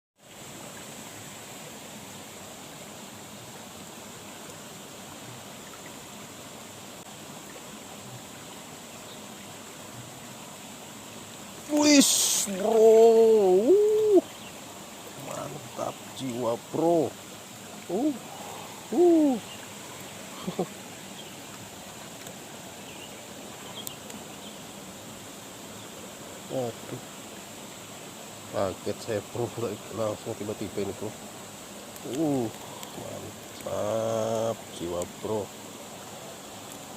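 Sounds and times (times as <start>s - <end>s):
night insects chirring: 0.2s - 36.9s
outdoor hiss: 0.2s - 36.9s
water rushing in ditch: 0.2s - 36.9s
faint click: 23.7s - 24.2s, 31.9s - 33.7s.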